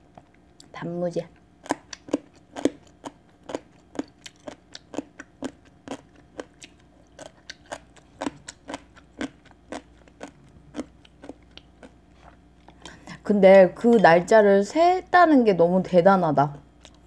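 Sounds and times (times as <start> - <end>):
pickled radish crunching: 0.0 - 13.2.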